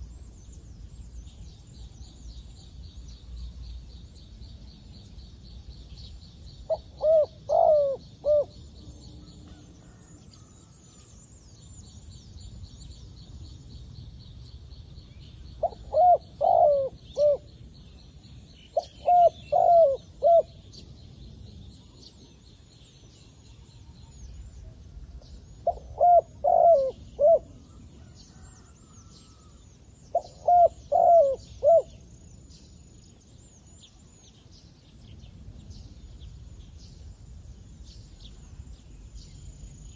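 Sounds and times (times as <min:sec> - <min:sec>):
dove cooing: 0:06.7 - 0:08.6, 0:15.6 - 0:17.5, 0:18.8 - 0:20.6, 0:25.6 - 0:27.6, 0:30.1 - 0:32.0.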